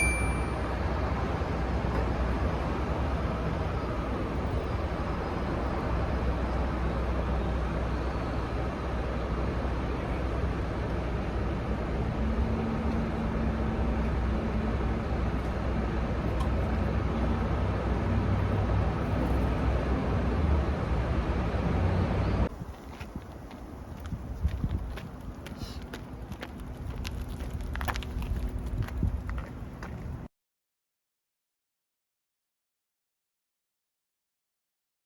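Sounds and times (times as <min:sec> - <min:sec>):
faint engine hum: 0:00.0 - 0:30.3
road traffic noise: 0:00.0 - 0:30.3.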